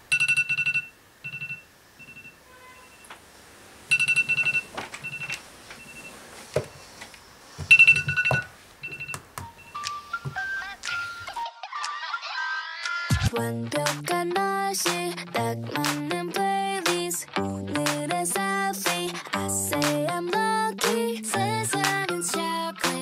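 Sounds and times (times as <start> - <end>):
electronic alarm beeps: 0.1 - 3.1, 3.9 - 6.9, 7.7 - 10.2.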